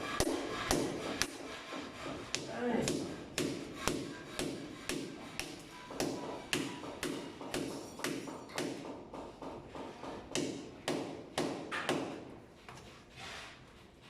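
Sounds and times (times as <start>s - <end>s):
hammer strikes with short ring: 5.4s - 8.9s.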